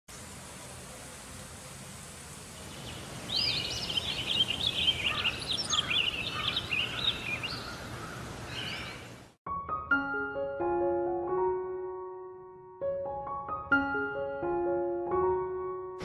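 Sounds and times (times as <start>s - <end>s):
outdoor background hiss: 0.1s - 9.4s
songbird twittering song: 1.6s - 9.2s.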